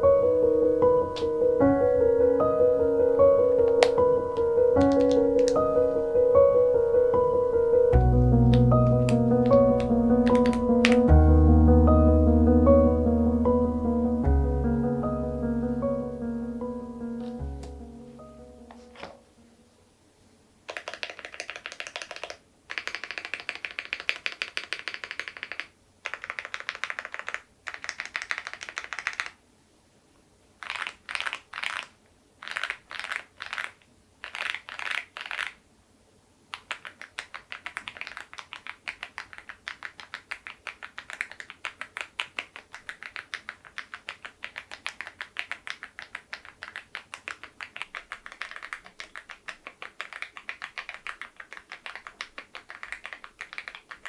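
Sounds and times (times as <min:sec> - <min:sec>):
mechanical keyboard typing: 0:03.6 - 0:05.9, 0:08.2 - 0:11.2, 0:20.7 - 0:29.4, 0:30.6 - 0:35.6, 0:36.6 - 0:54.0.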